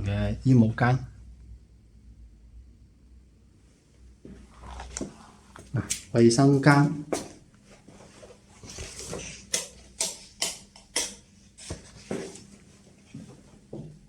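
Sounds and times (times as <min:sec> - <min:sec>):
footsteps on a hard floor: 0:06.6 - 0:09.4, 0:11.6 - 0:14.0.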